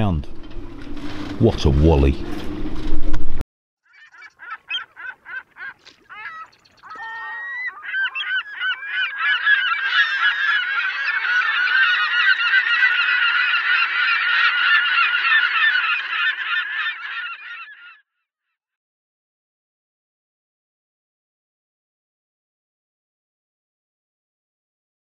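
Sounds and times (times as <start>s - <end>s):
flock of birds calling: 3.9s - 18.0s.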